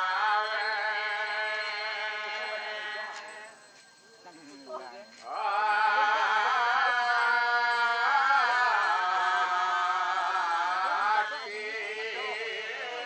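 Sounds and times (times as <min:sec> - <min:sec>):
quiet chanting: 0:00.0 - 0:13.0
voice singing held notes: 0:05.2 - 0:13.0.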